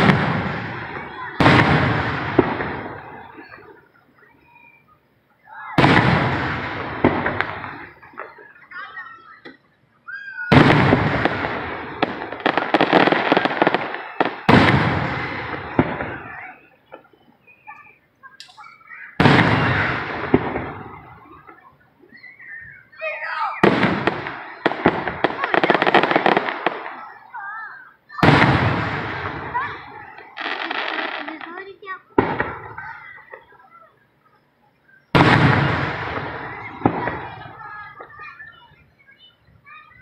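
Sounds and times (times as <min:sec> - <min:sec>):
sharp firework cracks: 0:00.0 - 0:03.7, 0:05.6 - 0:08.6, 0:09.4 - 0:22.6, 0:23.5 - 0:27.4, 0:28.1 - 0:33.6, 0:35.0 - 0:38.5
firework shells bursting: 0:00.0 - 0:03.8, 0:05.8 - 0:08.7, 0:10.5 - 0:22.6, 0:23.6 - 0:27.2, 0:35.0 - 0:38.3.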